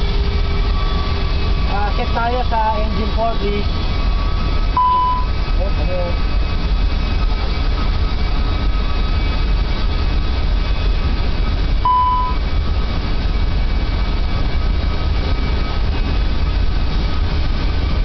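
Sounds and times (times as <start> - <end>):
jet engines rumbling: 0.0 - 18.0
short beep: 4.8 - 5.3, 11.8 - 12.4.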